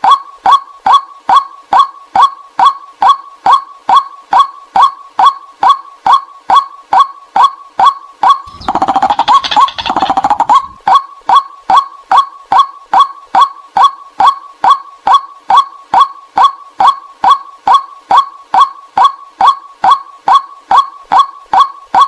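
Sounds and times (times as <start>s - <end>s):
rapid chattering bird calls: 8.5s - 10.9s
waterhen kwak calls: 8.5s - 11.4s.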